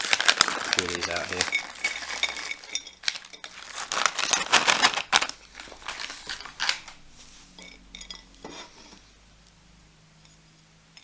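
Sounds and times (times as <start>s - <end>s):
plastic pouch crinkling: 0.0s - 7.0s.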